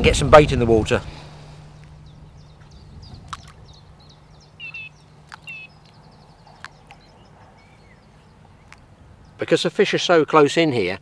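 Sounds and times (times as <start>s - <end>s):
small birds chirping: 1.4s - 10.3s
bait plopping into water: 3.2s - 3.6s.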